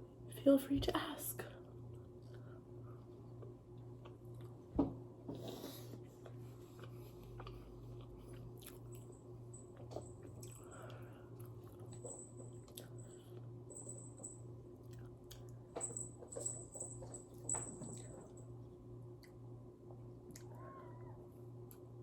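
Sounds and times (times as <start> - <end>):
low steady hum: 0.0 - 22.0
chewing and biting food: 5.9 - 12.0.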